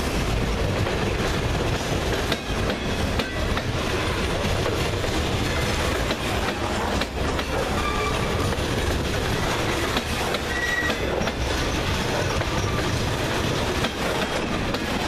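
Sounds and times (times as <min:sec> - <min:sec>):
train wheels rumbling on rail: 0:00.0 - 0:15.0
high wheel squeals: 0:07.6 - 0:08.5, 0:09.7 - 0:13.0.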